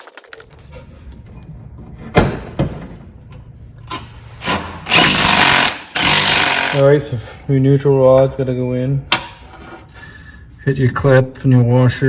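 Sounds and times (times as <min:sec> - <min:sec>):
metal parts knocking: 0:00.0 - 0:00.7.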